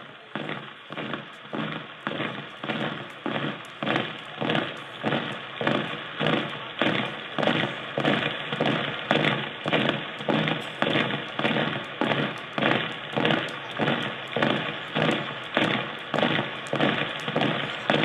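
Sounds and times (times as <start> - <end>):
heavy rhythmic thumping: 0.0 - 18.0.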